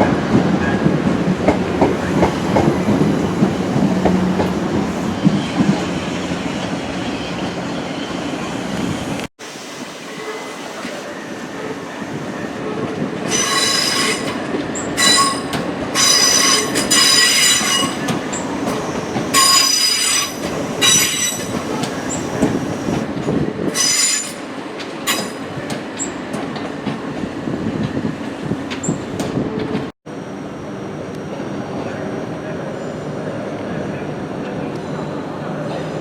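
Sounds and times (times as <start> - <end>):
train low rumble: 0.0 - 9.3
train wheels squealing on rails: 1.8 - 26.4.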